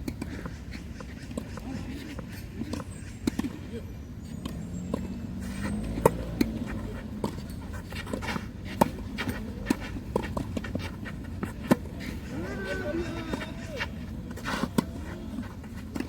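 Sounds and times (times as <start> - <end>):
tennis ball bouncing: 0.0 - 3.6, 4.4 - 16.0
tennis ball struck by racket: 4.4 - 16.0.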